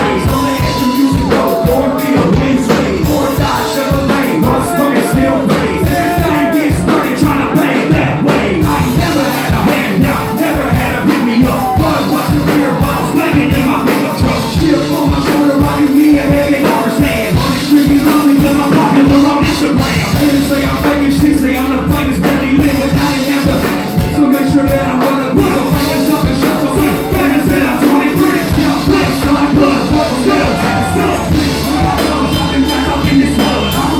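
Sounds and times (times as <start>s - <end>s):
crowd yelling: 0.0s - 14.4s, 24.2s - 33.9s
live band with steady beat: 0.0s - 33.9s
person singing or rapping: 0.0s - 33.9s.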